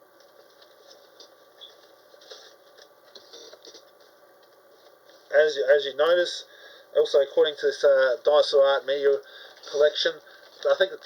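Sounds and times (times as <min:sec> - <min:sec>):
clicks and rustles of handling: 0:00.1 - 0:05.3, 0:09.0 - 0:11.0.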